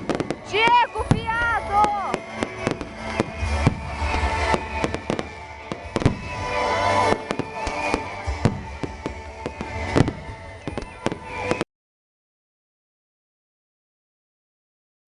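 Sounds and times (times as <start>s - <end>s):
fireworks banging and crackling: 0.0s - 11.6s
music playing: 0.0s - 11.6s.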